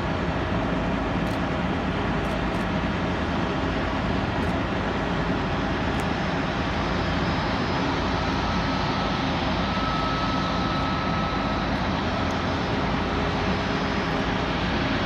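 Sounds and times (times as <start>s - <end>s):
jet engines rushing: 0.0s - 15.0s
faint high whine: 3.8s - 15.0s.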